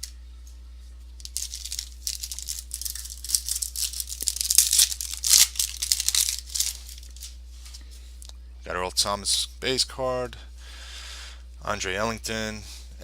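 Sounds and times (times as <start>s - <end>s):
foil wrapper tearing and crinkling: 1.2s - 7.3s.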